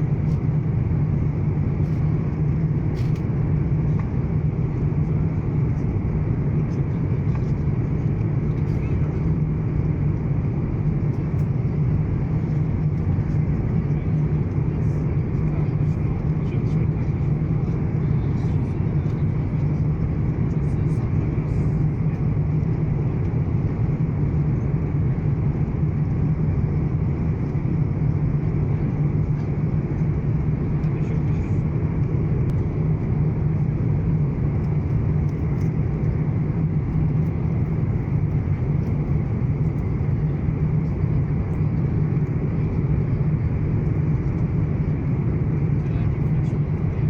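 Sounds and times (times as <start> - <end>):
airliner cabin drone: 0.0 - 47.0.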